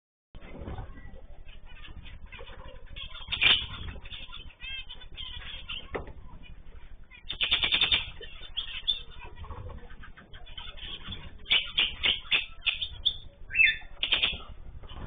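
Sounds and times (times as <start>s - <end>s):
birds flapping wings: 0.4s - 15.0s.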